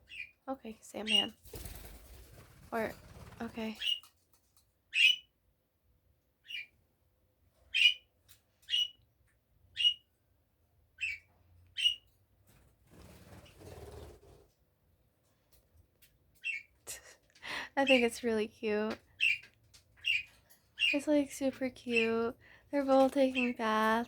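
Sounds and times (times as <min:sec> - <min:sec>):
parrot chirping: 0:01.0 - 0:01.4, 0:04.9 - 0:05.3, 0:06.4 - 0:06.8, 0:07.7 - 0:09.0, 0:09.7 - 0:10.1, 0:11.0 - 0:12.1.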